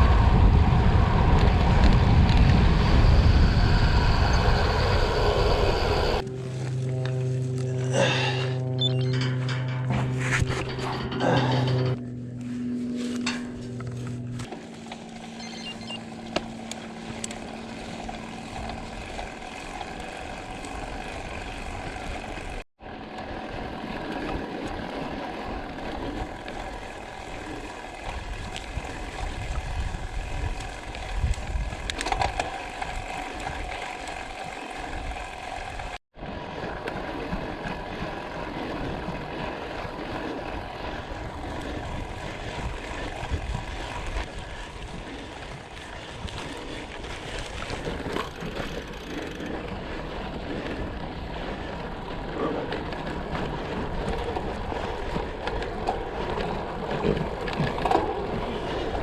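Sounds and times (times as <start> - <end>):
bicycle freehub ticking: 15.0 - 22.6, 25.8 - 36.0, 40.8 - 52.2.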